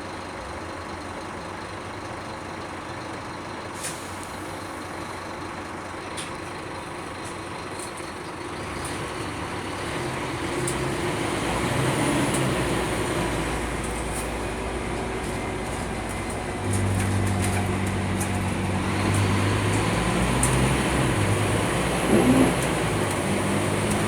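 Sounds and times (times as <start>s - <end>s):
bus engine and road noise: 0.0s - 24.0s
light rattles: 10.1s - 24.0s.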